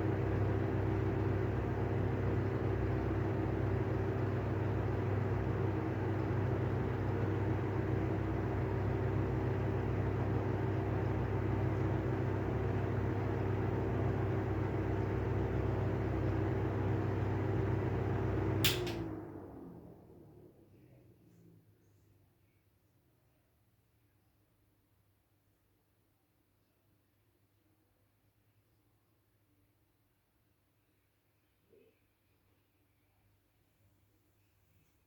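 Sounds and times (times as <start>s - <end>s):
exhaust fan humming: 0.0s - 21.0s.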